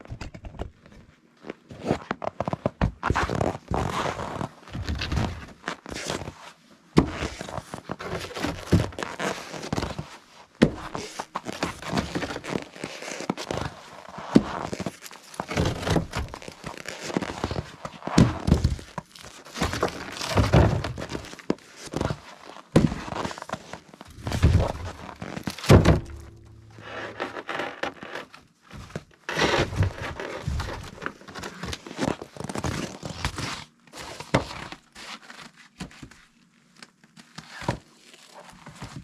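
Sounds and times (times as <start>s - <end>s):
firewood thunking and clattering: 24.1s - 26.8s.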